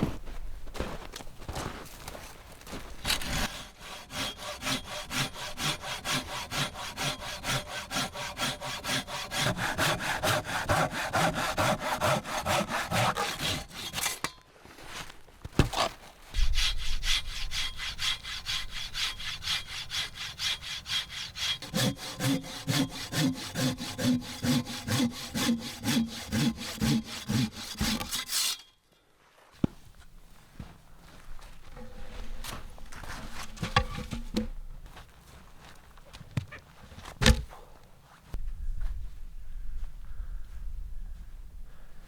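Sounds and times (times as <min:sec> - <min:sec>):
hand saw cutting wood: 0:03.0 - 0:14.4, 0:15.6 - 0:28.7, 0:31.0 - 0:34.7, 0:37.2 - 0:37.5.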